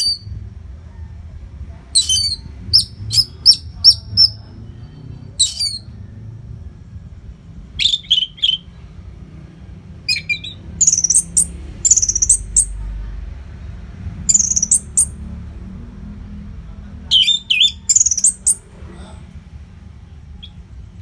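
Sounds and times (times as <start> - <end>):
thrush singing: 2.0 - 5.9, 10.1 - 12.8, 14.3 - 15.2.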